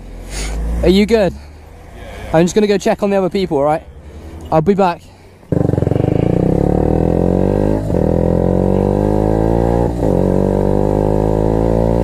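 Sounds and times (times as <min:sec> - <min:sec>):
small motorcycle engine accelerating: 0:05.5 - 0:12.0.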